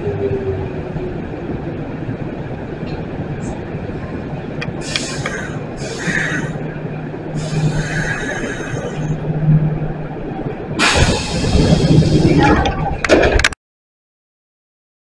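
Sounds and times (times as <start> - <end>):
electric train rumbling: 0.0 - 13.6
door air hiss: 4.8 - 6.4, 10.8 - 12.3
high-pitched brake squeals: 7.4 - 9.2.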